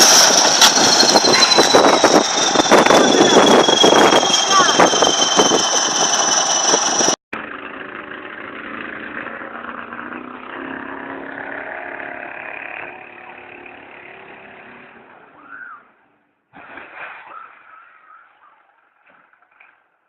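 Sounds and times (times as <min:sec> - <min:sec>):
engine with high whine: 0:00.0 - 0:15.5
engine hum: 0:00.0 - 0:16.3.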